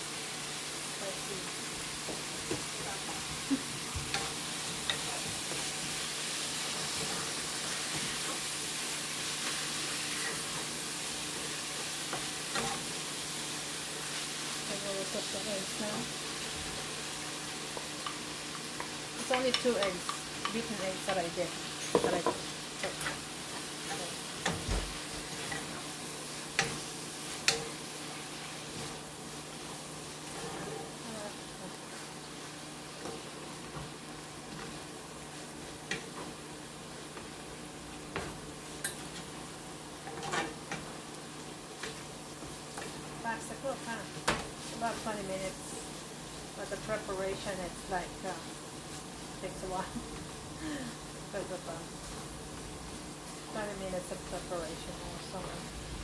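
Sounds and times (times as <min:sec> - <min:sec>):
meat sizzling in a skillet: 0:00.0 - 0:56.0
wooden spatula scraping: 0:40.0 - 0:40.8.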